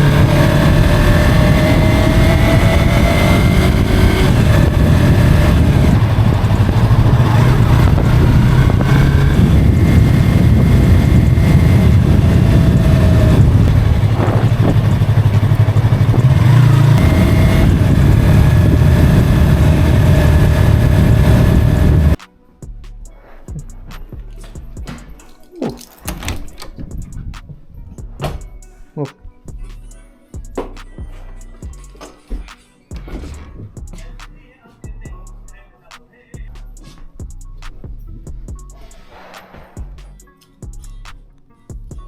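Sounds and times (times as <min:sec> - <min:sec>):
road and wind noise: 0:00.0 - 0:22.2
vehicle engine running: 0:00.0 - 0:22.2.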